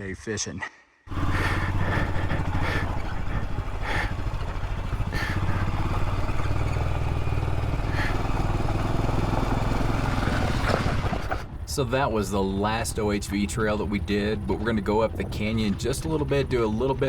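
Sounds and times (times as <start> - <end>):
motorcycle engine running at low revs: 1.1 - 11.8.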